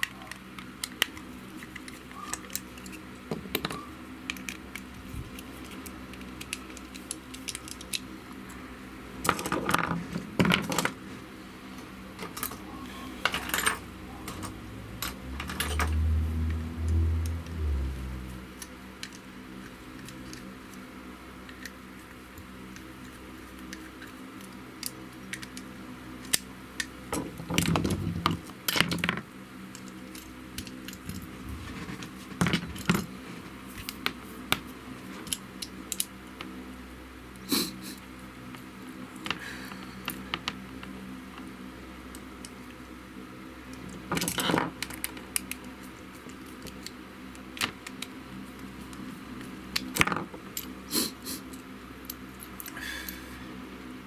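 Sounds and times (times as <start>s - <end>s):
small plastic and metal parts clicking: 0.0s - 8.6s, 18.6s - 20.8s, 22.4s - 33.1s, 43.7s - 50.7s.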